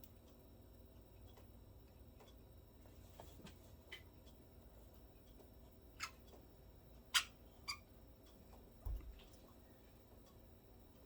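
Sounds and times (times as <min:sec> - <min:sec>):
budgerigars chirping: 0:07.1 - 0:07.8.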